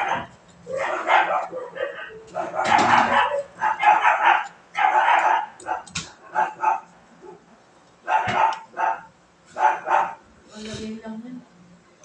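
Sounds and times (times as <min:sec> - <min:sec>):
dog barking: 0:00.0 - 0:10.2.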